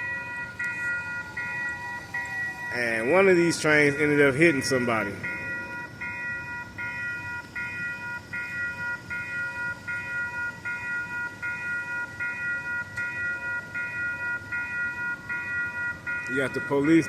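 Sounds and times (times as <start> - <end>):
railroad crossing bell ringing: 0.0 - 17.0.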